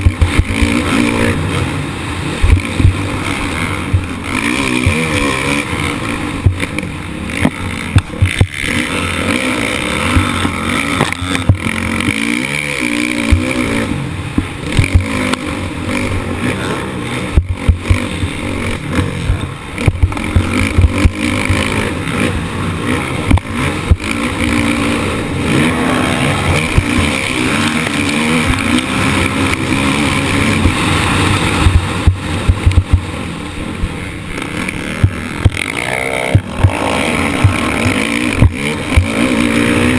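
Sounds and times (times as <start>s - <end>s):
motocross bike engine revving: 0.0s - 39.9s
sharp knocks: 35.0s - 39.2s.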